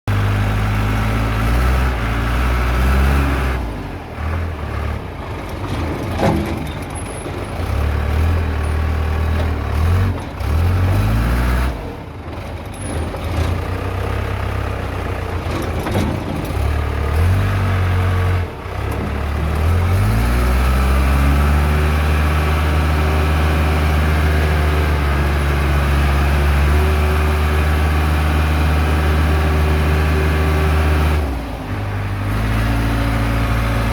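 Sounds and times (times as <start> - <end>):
backhoe diesel engine revving: 0.1 - 33.9.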